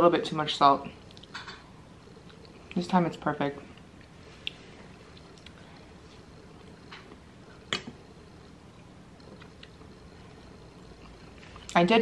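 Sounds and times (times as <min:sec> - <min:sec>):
person chewing: 0:02.2 - 0:02.8, 0:03.7 - 0:07.9, 0:08.7 - 0:11.8.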